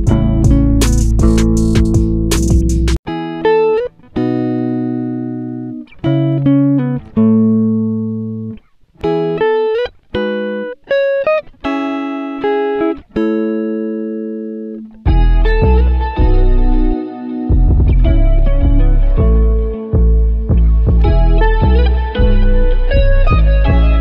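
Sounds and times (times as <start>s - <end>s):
plucked guitar music: 0.0s - 24.0s.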